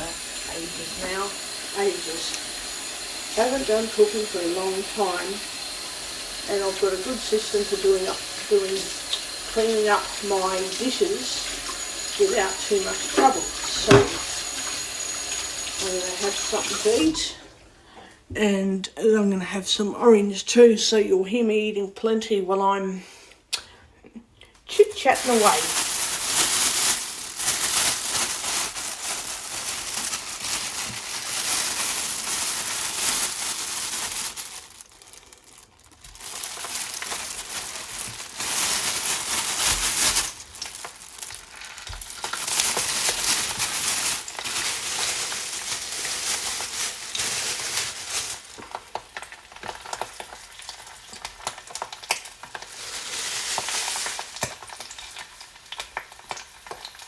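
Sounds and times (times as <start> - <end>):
sausages sizzling in a pan: 0.0 - 17.5, 24.8 - 57.0.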